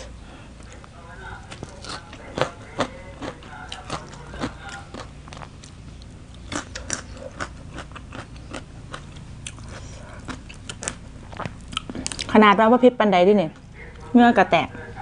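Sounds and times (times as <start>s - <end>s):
mouth chewing crunchy food: 0.6s - 12.4s.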